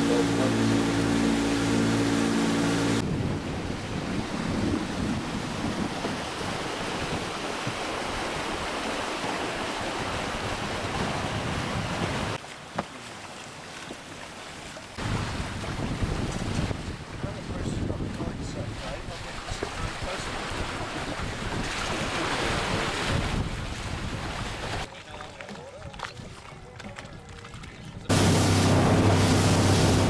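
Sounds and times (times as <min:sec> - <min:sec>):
boat engine hum: 0:00.0 - 0:22.2, 0:25.9 - 0:30.0
water rushing past boat: 0:00.0 - 0:30.0
wind buffeting microphone: 0:00.2 - 0:08.7, 0:15.0 - 0:24.9.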